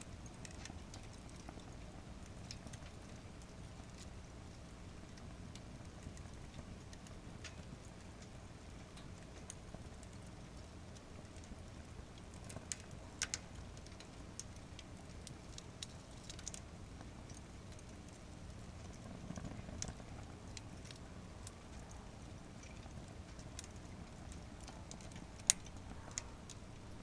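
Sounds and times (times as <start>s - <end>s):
wood fire crackling: 0.0s - 27.0s
sharp pops of fire: 22.6s - 26.6s.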